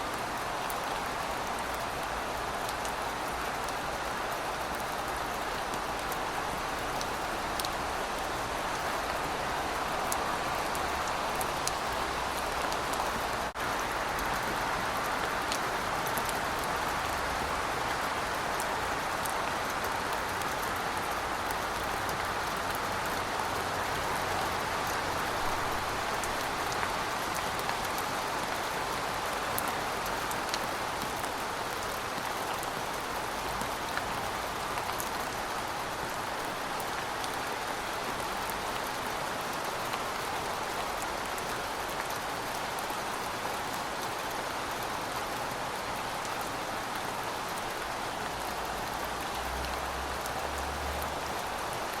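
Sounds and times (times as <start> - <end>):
rain falling on pavement: 0.0 - 52.0.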